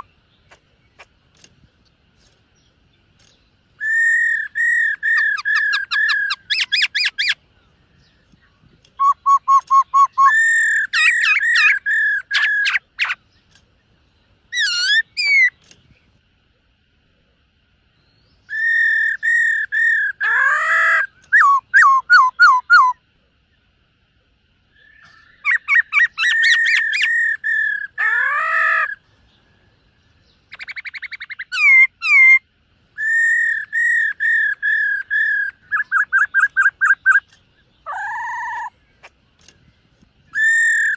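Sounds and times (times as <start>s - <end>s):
bird singing whistled trills: 2.6s - 13.3s, 14.5s - 15.7s, 18.0s - 23.6s, 24.7s - 39.1s, 40.3s - 40.9s.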